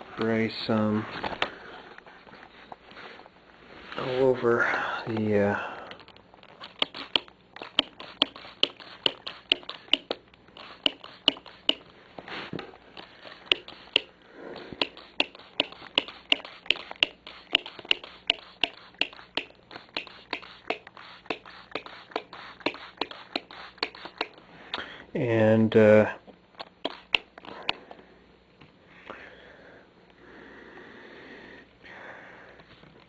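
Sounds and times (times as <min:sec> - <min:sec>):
soft rustle: 0:00.0 - 0:05.4
spray bottle trigger clicking: 0:06.7 - 0:11.8, 0:14.8 - 0:24.4.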